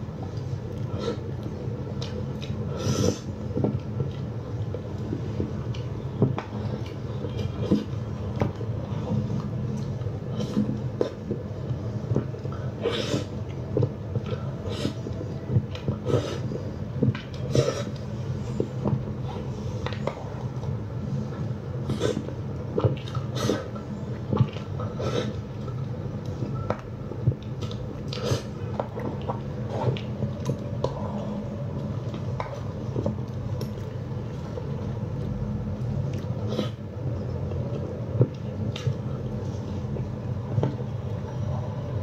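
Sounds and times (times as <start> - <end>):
steady low hum: 0.0 - 42.0
person chewing food: 0.1 - 41.2.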